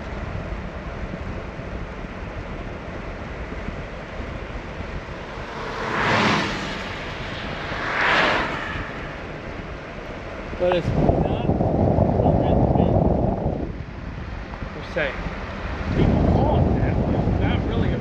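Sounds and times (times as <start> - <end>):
car road and engine rumble: 0.0 - 18.0
vehicles whooshing past: 3.8 - 11.0.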